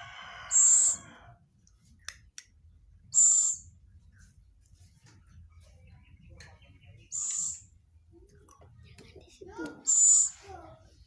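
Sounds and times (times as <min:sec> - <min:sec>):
owl shrill calls: 0:00.4 - 0:01.2, 0:03.1 - 0:03.7, 0:09.8 - 0:10.4.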